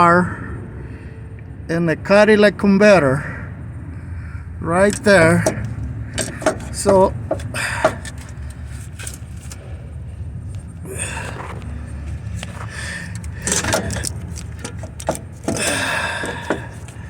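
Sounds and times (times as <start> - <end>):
steady low hum: 3.3 - 17.0
metal clinking and scraping: 5.0 - 17.0.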